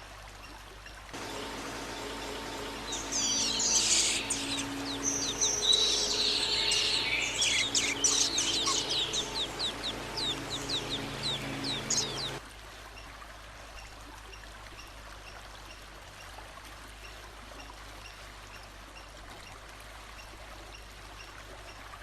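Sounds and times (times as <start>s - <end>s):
songbird chirping and whistling: 1.2s - 12.4s.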